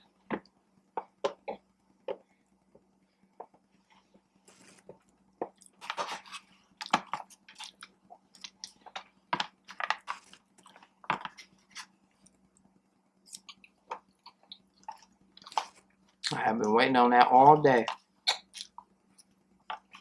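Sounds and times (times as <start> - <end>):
chewing mouth smacks: 18.2 - 19.3.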